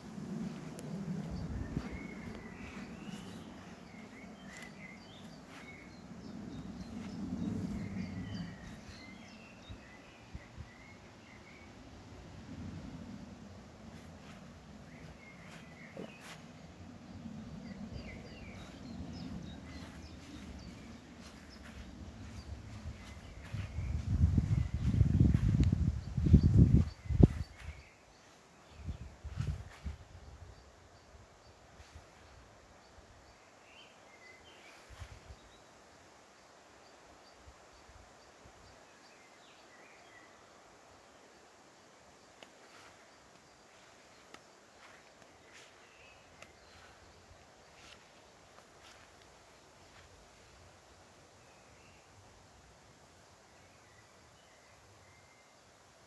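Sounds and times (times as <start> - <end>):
small birds chirping: 0.0 - 12.2, 13.2 - 41.5, 42.2 - 52.2
steady low rumble: 0.0 - 27.9
soft hiss: 0.0 - 56.0.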